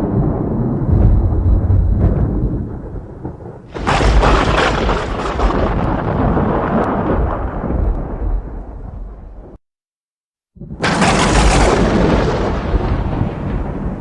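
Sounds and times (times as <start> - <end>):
sharp thunderclap: 0.0 - 9.6, 10.6 - 14.0
thunder rumbling: 0.0 - 9.6, 10.6 - 14.0.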